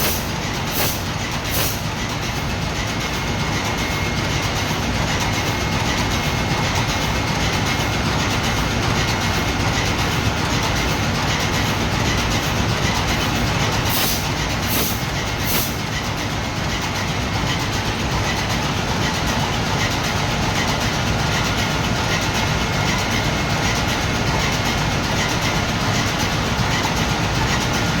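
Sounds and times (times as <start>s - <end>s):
ship diesel engine running: 0.0s - 28.0s
short high hisses: 13.9s - 15.8s.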